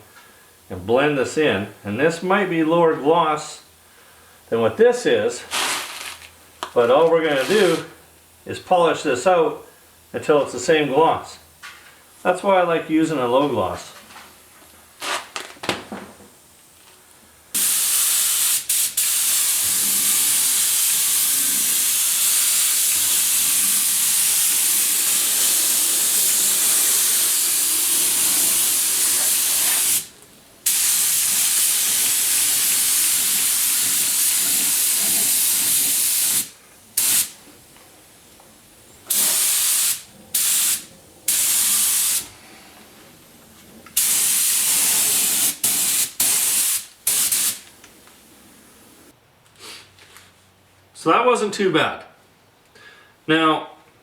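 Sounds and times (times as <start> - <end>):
aerosol spray can hissing: 17.6 - 30.1, 30.7 - 37.4, 39.1 - 42.3, 44.0 - 47.6.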